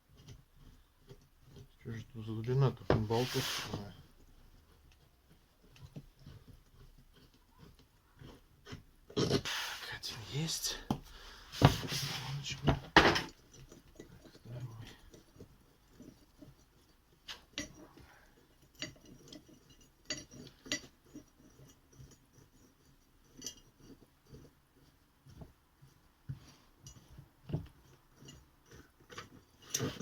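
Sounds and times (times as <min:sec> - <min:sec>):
spanner and bolts clinking: 0:12.4 - 0:24.0.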